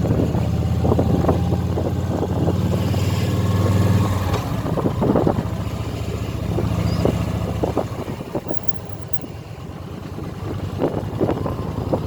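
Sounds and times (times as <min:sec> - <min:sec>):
motorcycle engine running: 0:08.5 - 0:09.3.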